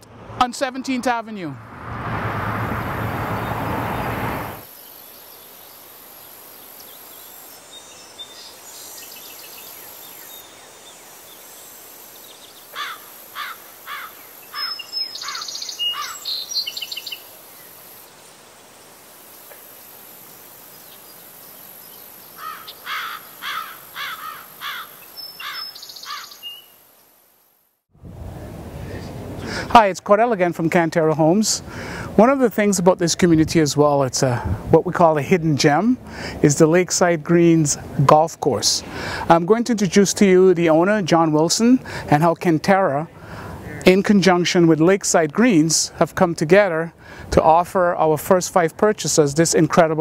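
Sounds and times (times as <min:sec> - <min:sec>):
loud rush of outdoor noise: 0:00.0 - 0:07.7, 0:08.6 - 0:25.2, 0:28.0 - 0:44.1
songbird chirping: 0:02.6 - 0:27.6.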